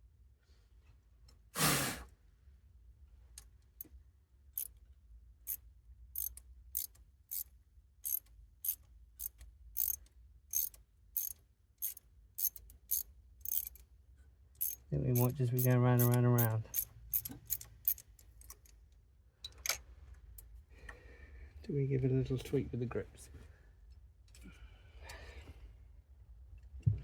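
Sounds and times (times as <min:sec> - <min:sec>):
loud brief rasp: 0:01.6 - 0:02.1
socket ratchet clicking: 0:05.5 - 0:13.9, 0:14.6 - 0:18.8.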